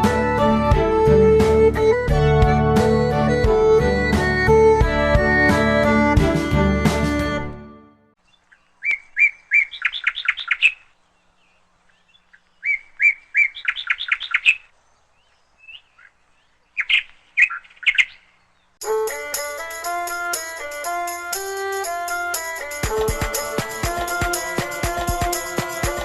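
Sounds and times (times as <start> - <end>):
bird chirps: 8.2 - 18.8
songbird singing: 8.2 - 26.0.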